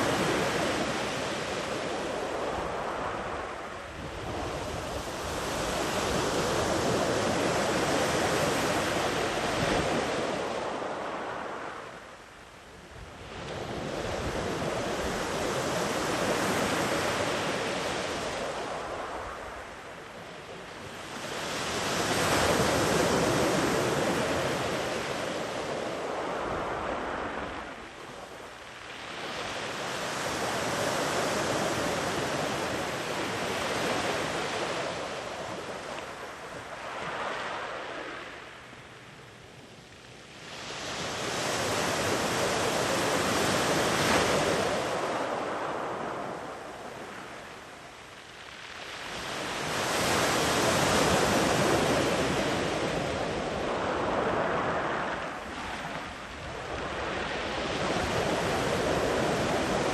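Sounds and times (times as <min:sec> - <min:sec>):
sea waves breaking on beach: 0:40.4 - 0:59.9.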